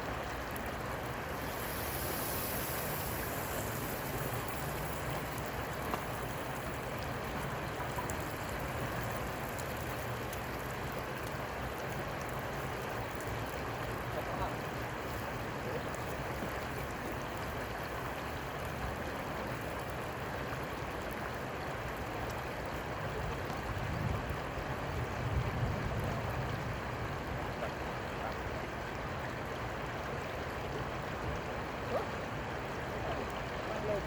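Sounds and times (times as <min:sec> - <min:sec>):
flowing river water: 0:00.0 - 0:34.0.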